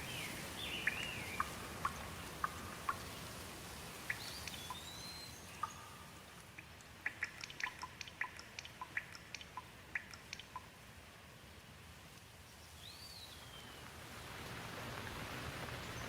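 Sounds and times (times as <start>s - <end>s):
light rain hissing: 0.0s - 16.0s
water drops dripping: 0.7s - 10.8s.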